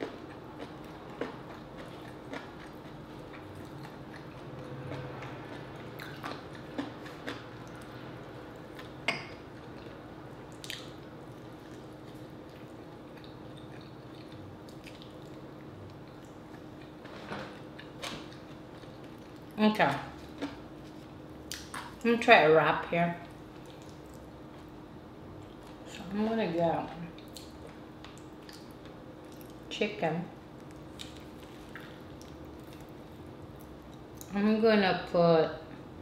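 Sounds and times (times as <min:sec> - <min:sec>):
person chewing: 0:00.0 - 0:22.0, 0:23.2 - 0:24.7, 0:27.1 - 0:29.7, 0:30.5 - 0:34.3
faint steady hum: 0:00.0 - 0:36.0.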